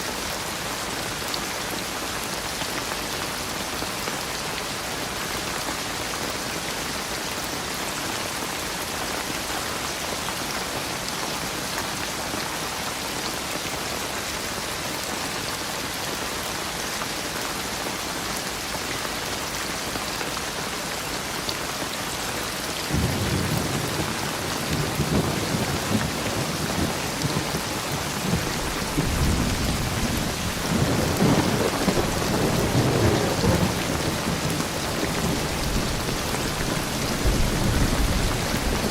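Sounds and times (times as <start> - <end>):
steady rain falling: 0.0 - 38.9
thunder rumbling: 22.9 - 38.9.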